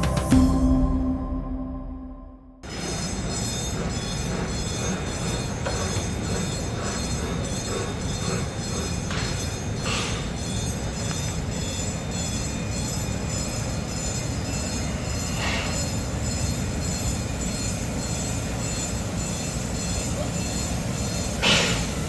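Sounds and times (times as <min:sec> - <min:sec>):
train rumbling: 0:00.0 - 0:01.7, 0:02.6 - 0:19.4
high hiss or squeal: 0:13.9 - 0:22.0.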